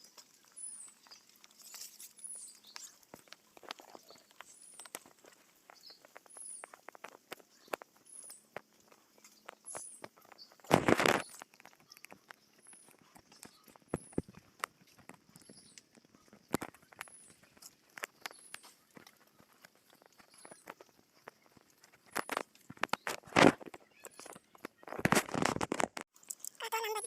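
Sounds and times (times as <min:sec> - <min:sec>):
footsteps: 0:02.8 - 0:26.1
loud rustle: 0:10.4 - 0:11.5.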